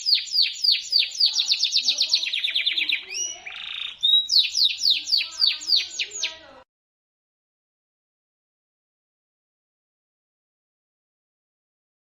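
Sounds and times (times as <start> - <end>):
canary singing: 0.0 - 6.6.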